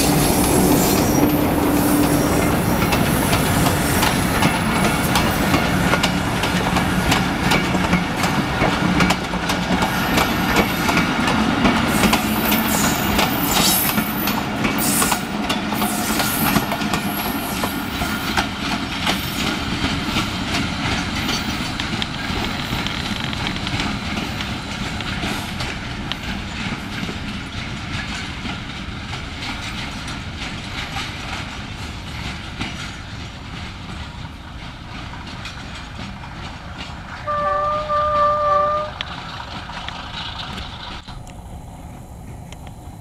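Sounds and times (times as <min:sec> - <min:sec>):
train wheels clattering on track: 0:00.0 - 0:43.0
locomotive horn: 0:37.2 - 0:39.1.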